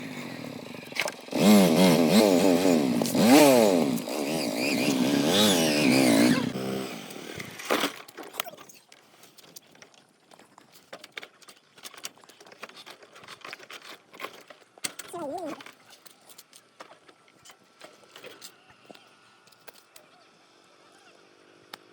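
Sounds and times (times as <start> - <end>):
small engine revving: 0.0 - 8.0.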